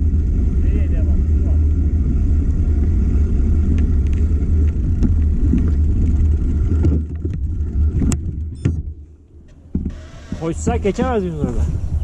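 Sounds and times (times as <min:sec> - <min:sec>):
bike tyres rolling on trail: 0:00.0 - 0:12.0
wind rushing over microphone: 0:09.8 - 0:12.0.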